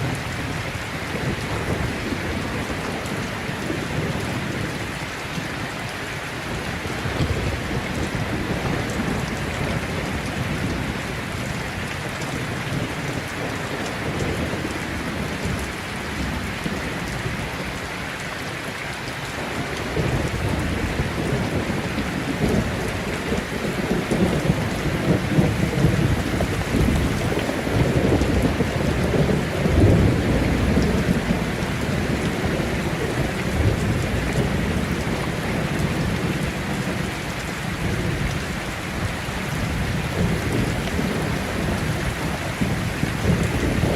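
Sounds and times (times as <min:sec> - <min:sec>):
low rolling thunder: 0:00.0 - 0:05.0, 0:19.4 - 0:43.9
heavy rain falling: 0:00.0 - 0:43.9.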